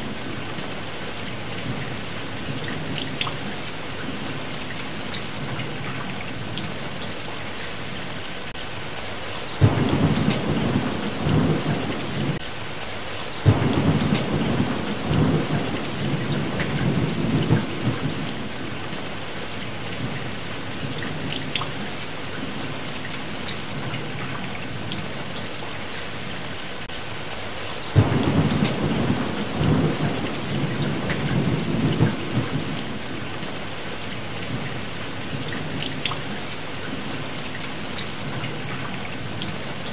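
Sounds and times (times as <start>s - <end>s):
steady rain: 0.0s - 39.9s
thunder cracking and rumbling: 9.6s - 12.4s, 13.4s - 18.8s, 28.0s - 33.4s.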